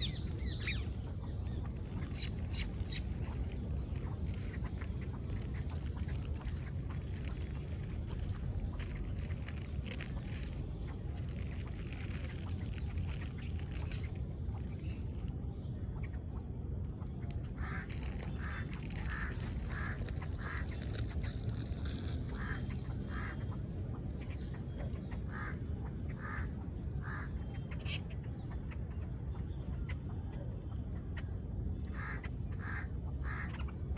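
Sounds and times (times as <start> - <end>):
ducks quacking: 0.0 - 10.4, 17.4 - 29.1, 31.9 - 33.8.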